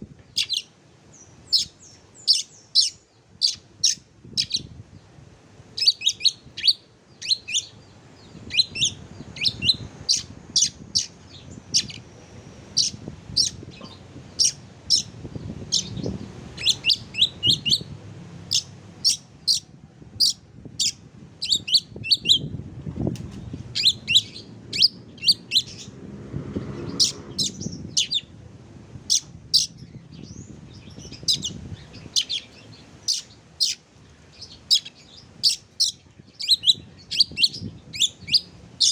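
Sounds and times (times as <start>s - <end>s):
songbird chirping: 5.8s - 22.5s, 23.3s - 26.0s, 29.1s - 38.9s.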